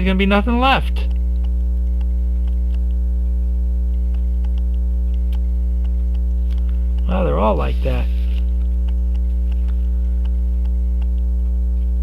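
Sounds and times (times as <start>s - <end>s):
electrical mains hum: 0.0s - 12.0s
faint light ticks: 1.1s - 3.0s, 8.4s - 11.9s.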